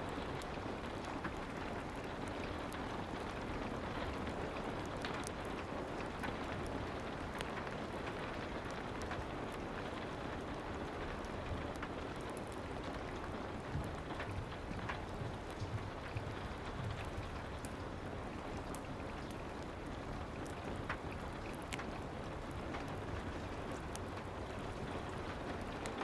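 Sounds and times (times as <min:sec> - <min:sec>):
soft rain pattering: 0:00.0 - 0:26.0.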